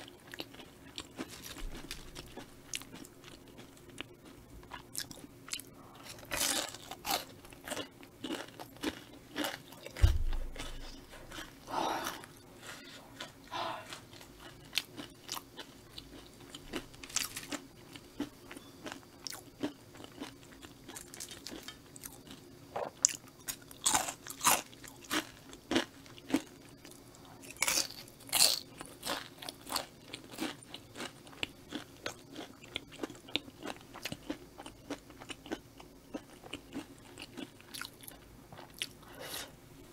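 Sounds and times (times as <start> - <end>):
crunching and chewing fried snacks: 0.0 - 39.5
low thump: 10.0 - 10.6.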